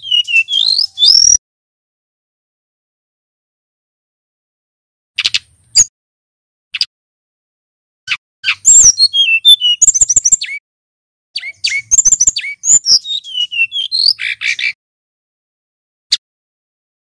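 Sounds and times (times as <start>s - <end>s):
bird singing high chirps: 0.0s - 1.4s, 8.1s - 10.6s, 11.4s - 14.8s.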